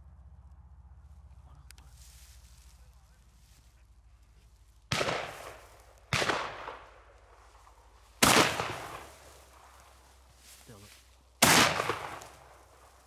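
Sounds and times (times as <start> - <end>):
shotgun shots echoing: 4.9 - 10.0, 11.4 - 13.0.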